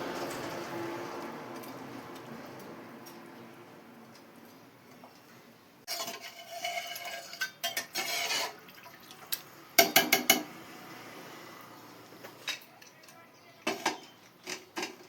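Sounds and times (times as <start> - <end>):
utensil clinking on cookware: 5.9 - 8.6, 9.8 - 10.6, 12.4 - 15.0
metal utensil scraping a pot: 5.9 - 8.7, 13.6 - 15.0.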